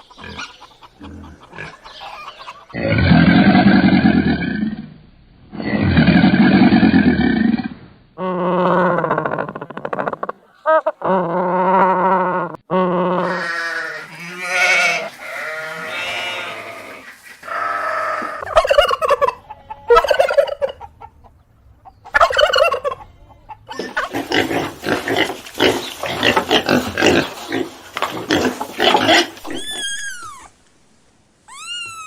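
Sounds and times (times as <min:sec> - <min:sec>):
farm animals calling: 0:00.0 - 0:04.4, 0:13.1 - 0:30.6, 0:31.4 - 0:32.0.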